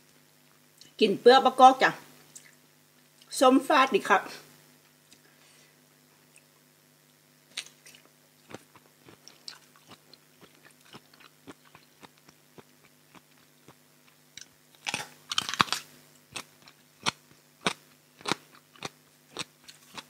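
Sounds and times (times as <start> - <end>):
crisp crunches of biting eggplant: 7.5 - 20.0
wet chewing clicks: 7.5 - 20.0.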